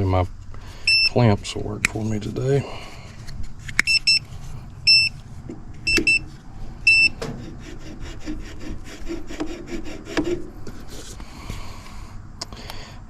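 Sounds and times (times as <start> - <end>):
low hum: 0.0 - 13.0
short electronic beeps: 0.9 - 1.2, 3.8 - 4.2, 4.8 - 5.2, 5.9 - 6.3, 6.9 - 7.2
clamps scraping and rubbing: 3.1 - 11.2.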